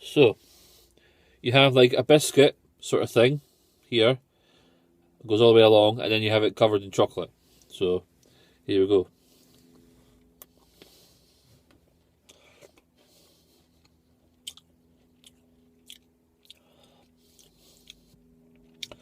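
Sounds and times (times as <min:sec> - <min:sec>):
biscuit stick crunching: 0:13.8 - 0:19.0.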